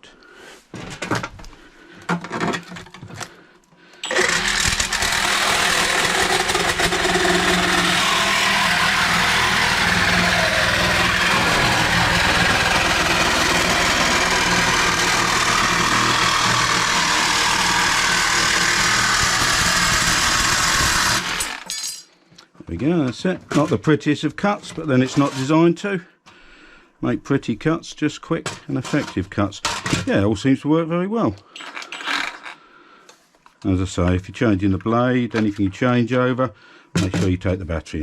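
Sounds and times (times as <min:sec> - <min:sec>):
reciprocating saw cutting metal: 0:04.0 - 0:21.7.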